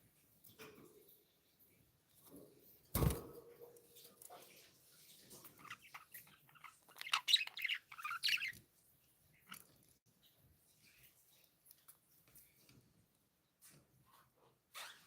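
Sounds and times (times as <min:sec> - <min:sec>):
budgerigars chirping: 0:05.6 - 0:08.6.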